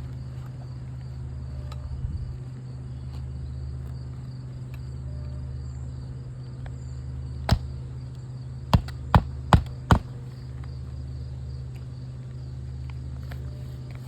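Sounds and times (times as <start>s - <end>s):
hammer striking a nail: 7.5s - 7.7s, 8.7s - 10.2s.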